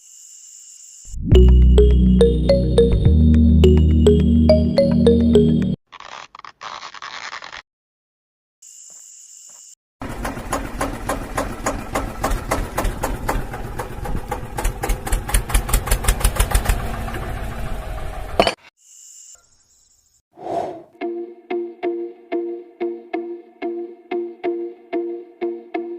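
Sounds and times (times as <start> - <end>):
small engine chugging: 10.0 - 18.5.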